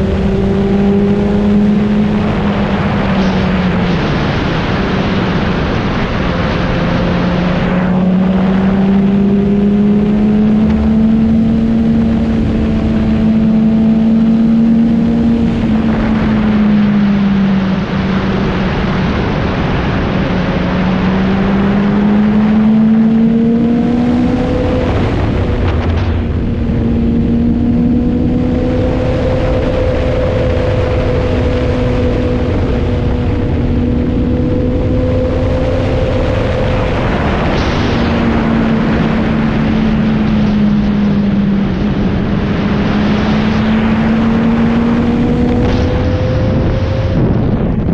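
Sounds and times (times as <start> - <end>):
rushing wind: 0.0 - 47.9
motorcycle engine running: 6.3 - 18.7.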